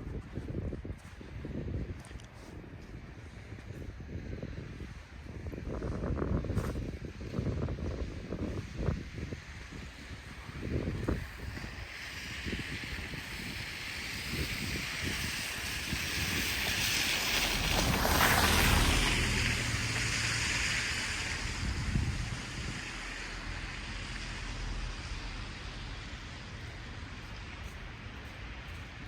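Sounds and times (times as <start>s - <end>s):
low engine hum: 0.0s - 29.0s
tyres hissing on wet road: 6.4s - 29.0s.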